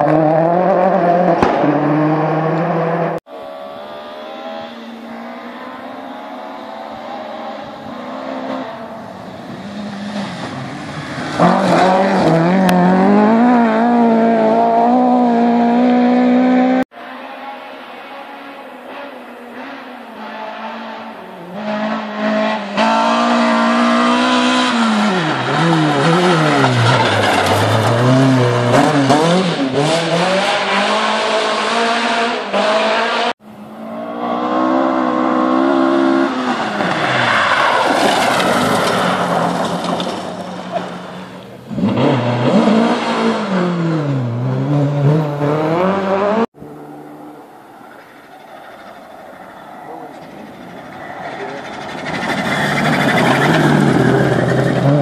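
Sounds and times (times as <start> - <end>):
rally car engines revving: 0.0 - 55.0
shot: 1.4 - 1.8.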